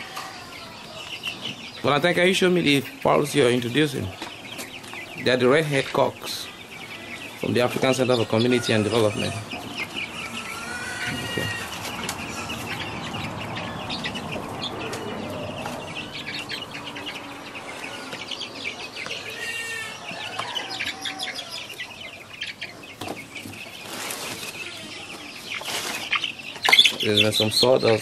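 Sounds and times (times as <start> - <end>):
young chickens clucking and chirping: 0.0 - 28.0.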